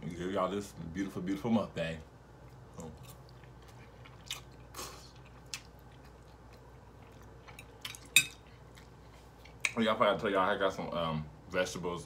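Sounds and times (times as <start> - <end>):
person chewing food: 2.4 - 9.8.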